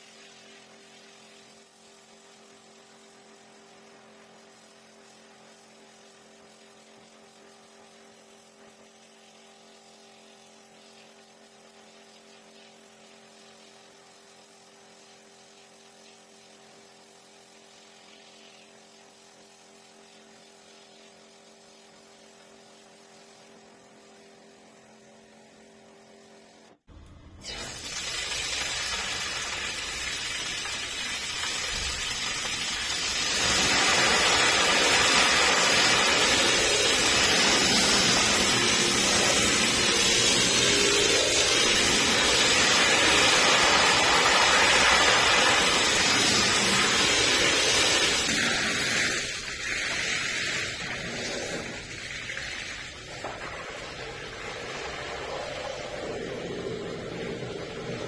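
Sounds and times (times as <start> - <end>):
water jet spraying carpet: 27.4 - 58.0.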